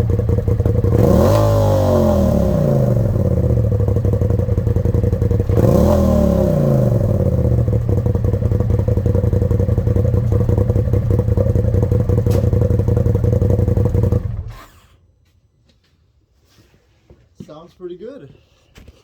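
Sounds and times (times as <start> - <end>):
car engine idling and revving: 0.0 - 14.8.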